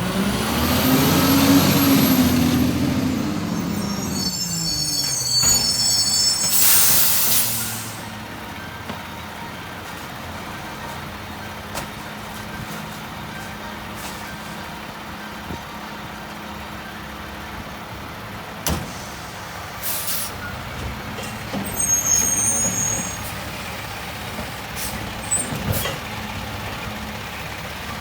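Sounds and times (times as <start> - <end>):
diesel truck engine: 0.0 - 28.0
high brake squeal: 0.8 - 8.2, 21.2 - 24.1, 24.8 - 26.0
air brakes hissing: 1.2 - 8.2, 18.7 - 20.4, 21.2 - 23.6, 24.7 - 26.0.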